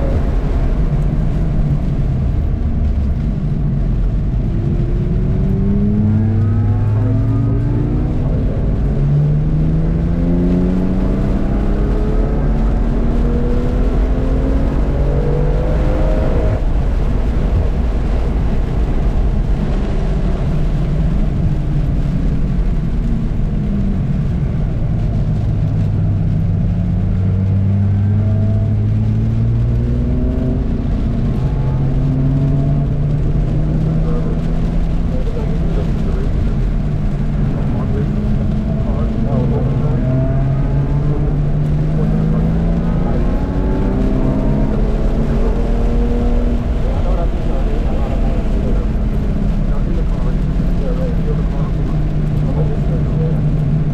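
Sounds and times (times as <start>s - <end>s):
race car engine pulling hard: 0.0s - 53.9s.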